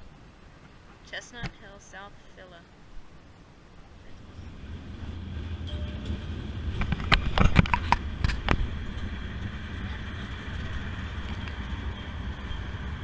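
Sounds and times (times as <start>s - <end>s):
streetcar rumbling: 4.0s - 13.0s.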